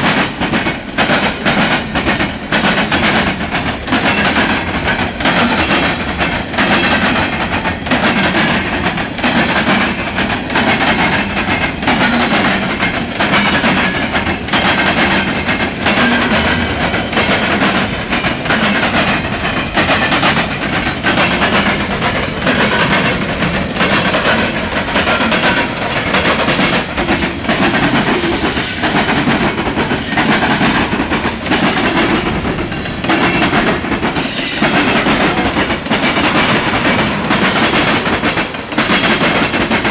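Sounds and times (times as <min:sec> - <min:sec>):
clickety-clack over rail joints: 0:00.0 - 0:39.9
freight train wheels on rails: 0:00.0 - 0:39.9
short high wheel squeals: 0:25.9 - 0:26.3.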